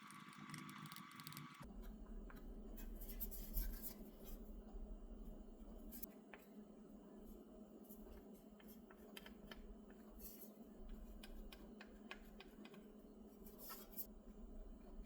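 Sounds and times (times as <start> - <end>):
low steady hum: 0.0 - 15.0
light clicks and taps: 8.0 - 14.0.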